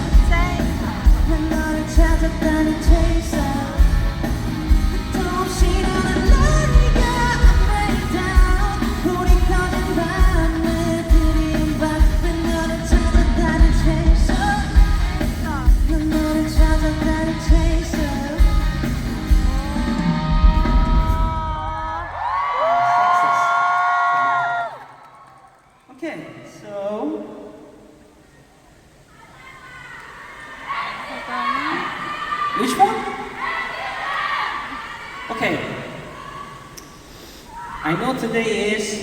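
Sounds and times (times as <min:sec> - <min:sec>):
male lead vocal: 0:00.0 - 0:22.1
live pop-rock band: 0:00.0 - 0:22.2.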